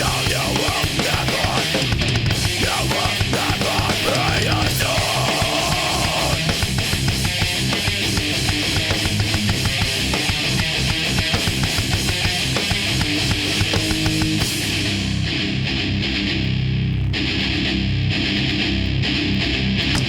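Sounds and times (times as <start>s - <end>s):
fast pounding drums: 0.0s - 15.2s
distorted electric guitars: 0.0s - 20.0s.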